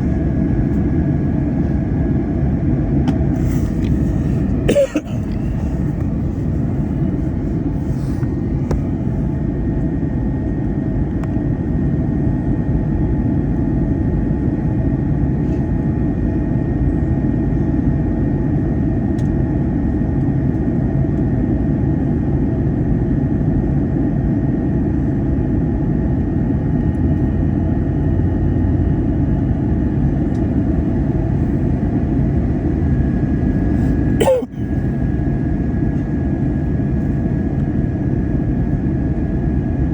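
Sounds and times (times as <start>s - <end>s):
faint steady whine: 0.0s - 17.3s, 28.5s - 39.9s
aircraft cabin engine rumble: 0.0s - 39.9s.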